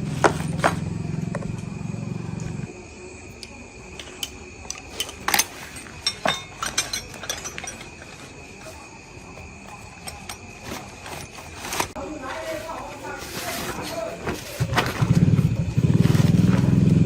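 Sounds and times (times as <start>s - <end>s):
hard objects clicking and clinking: 4.0s - 8.8s, 9.7s - 12.0s.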